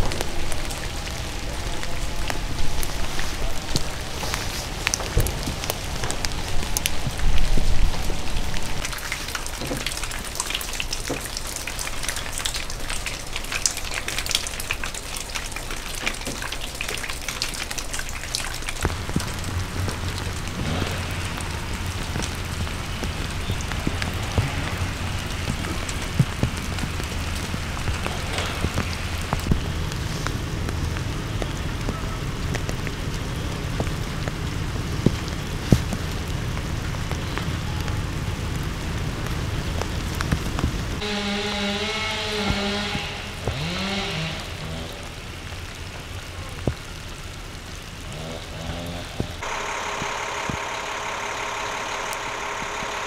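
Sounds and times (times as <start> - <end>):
low rumble: 0.0 - 10.4, 17.3 - 41.3
rain dripping on surfaces: 0.0 - 53.0.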